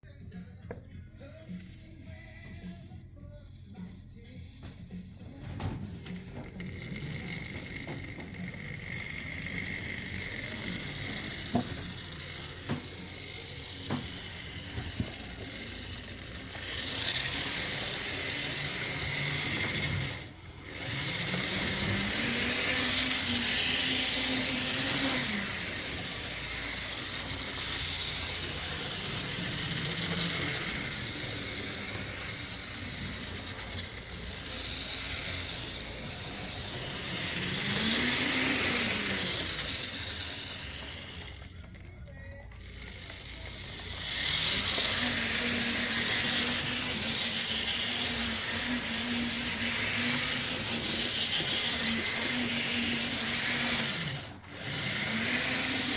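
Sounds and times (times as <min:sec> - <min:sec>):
model train motor whirring: 0:05.4 - 0:55.9.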